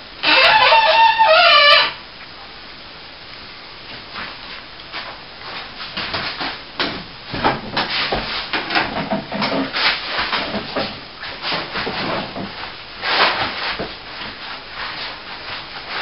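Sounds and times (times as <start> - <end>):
plasterboard scraping and knocking: 5.9 - 14.4.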